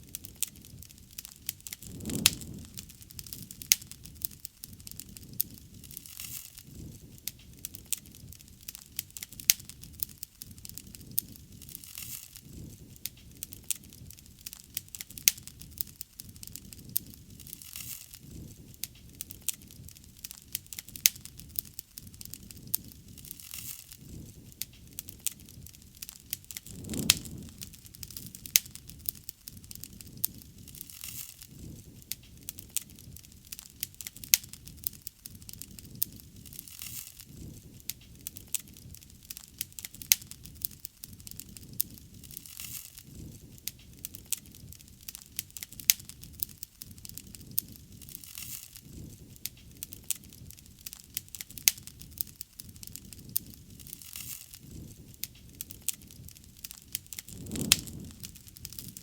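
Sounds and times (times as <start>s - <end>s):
rush of flames: 0.0s - 45.0s, 51.2s - 59.0s
bonfire crackling and popping: 0.0s - 59.0s.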